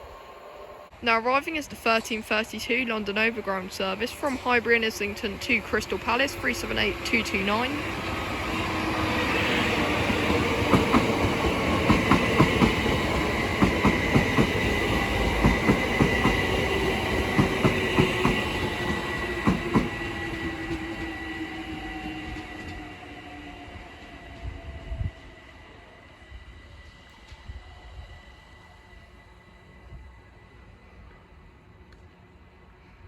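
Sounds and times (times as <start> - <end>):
electric train whine: 0.0 - 33.0
train wheels clicking over rail joints: 4.0 - 22.8.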